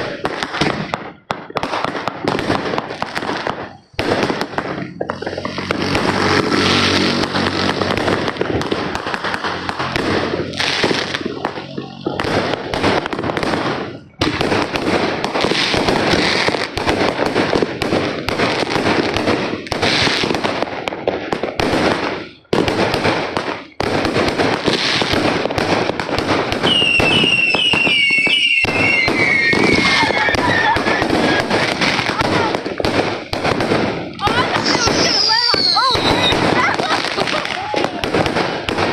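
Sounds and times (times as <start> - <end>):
fireworks crackling and banging: 0.0 - 38.9
warbling firework whistle: 26.6 - 32.2, 34.6 - 37.8.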